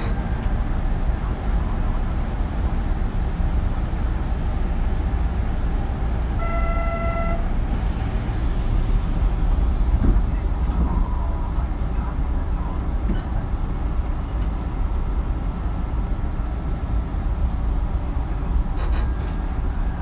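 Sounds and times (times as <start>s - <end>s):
train horn toot: 6.4s - 7.5s
train wheels rumbling: 7.1s - 20.0s.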